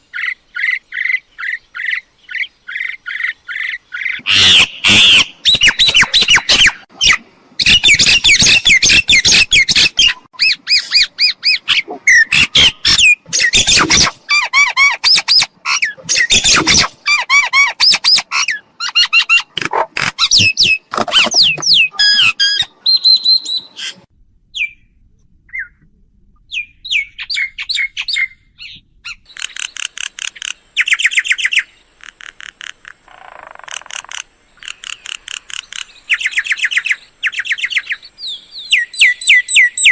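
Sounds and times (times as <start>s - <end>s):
mynas squawking and whistling: 4.0s - 24.0s
rapid repeated bird notes: 29.2s - 39.9s.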